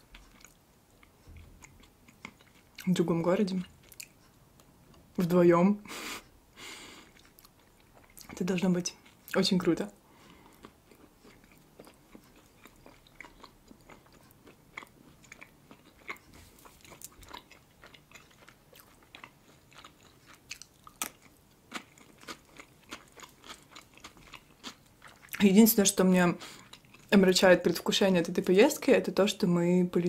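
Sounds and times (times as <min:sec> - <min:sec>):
person chewing food: 0:00.0 - 0:02.9, 0:03.6 - 0:05.1, 0:06.8 - 0:08.4, 0:09.0 - 0:09.4, 0:10.1 - 0:25.4, 0:26.4 - 0:27.1.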